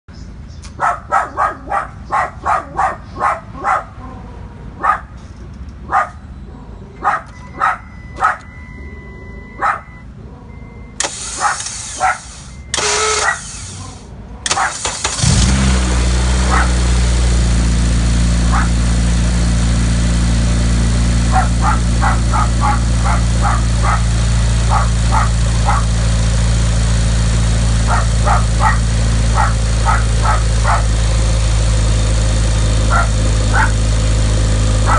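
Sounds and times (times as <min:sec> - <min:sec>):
dog barking: 0:00.8 - 0:04.2, 0:04.8 - 0:05.1, 0:05.9 - 0:06.2, 0:07.0 - 0:08.5, 0:09.6 - 0:10.0, 0:11.3 - 0:12.3, 0:13.1 - 0:13.5, 0:14.5 - 0:14.8, 0:16.5 - 0:16.8, 0:18.5 - 0:18.8, 0:21.3 - 0:24.1, 0:24.7 - 0:25.9, 0:27.9 - 0:30.9, 0:32.9 - 0:33.8
car engine idling: 0:09.6 - 0:34.9
car starter motor noise: 0:11.0 - 0:17.6.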